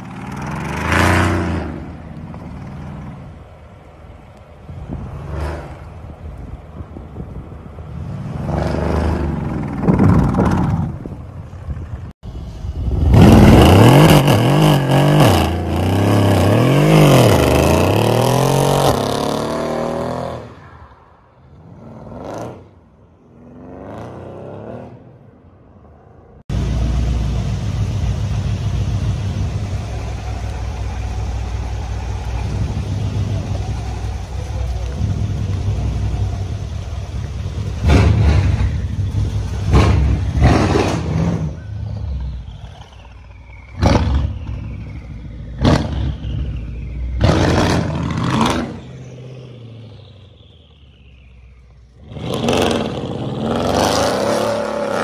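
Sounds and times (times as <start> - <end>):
car engine revving: 0.0 - 3.7, 12.3 - 20.6, 26.5 - 55.0
engine idling rumble: 1.8 - 8.2, 26.5 - 47.2
spinning tyres hissing: 26.5 - 55.0.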